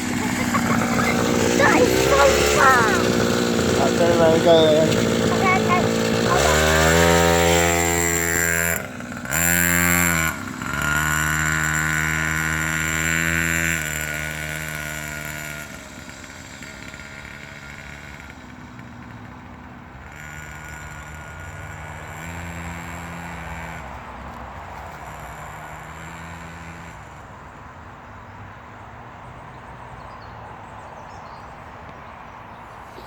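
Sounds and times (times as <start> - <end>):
motorbike engine revving: 0.0 - 27.7.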